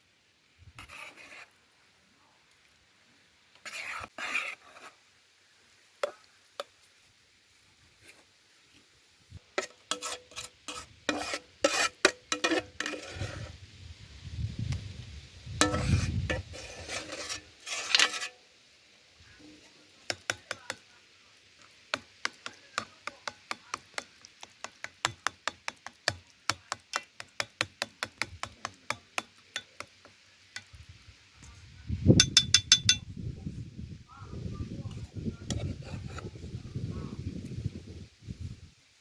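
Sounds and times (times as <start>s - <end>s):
utensil scraping cookware: 3.6s - 5.0s, 9.6s - 13.5s, 15.6s - 18.4s, 32.2s - 33.0s, 35.4s - 36.4s.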